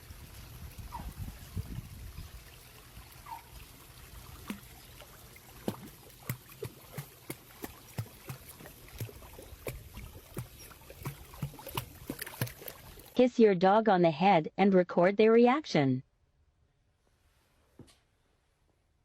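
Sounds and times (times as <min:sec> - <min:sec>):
wet clicks and drips: 0:04.3 - 0:13.2.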